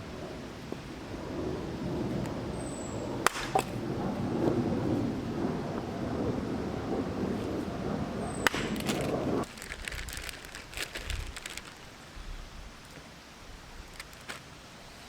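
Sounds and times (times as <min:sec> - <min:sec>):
thunder: 0:00.0 - 0:10.2
heavy rain: 0:00.0 - 0:14.1
faint hiss: 0:08.4 - 0:15.0
light ticks and crackles: 0:13.8 - 0:14.5.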